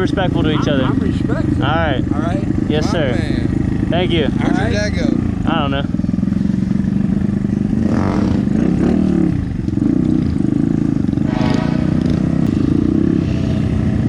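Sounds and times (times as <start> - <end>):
faint voices: 0.0 - 5.9
motorcycle engine idling: 0.0 - 14.0.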